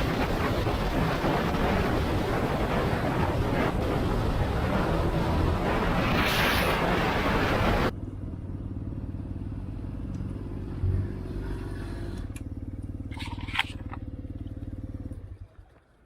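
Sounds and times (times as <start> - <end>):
motorcycle engine idling: 12.3 - 15.4.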